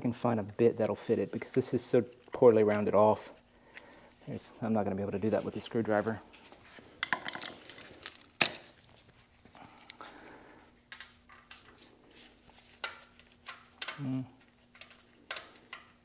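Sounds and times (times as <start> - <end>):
small metal tools clinking: 7.0 - 8.8.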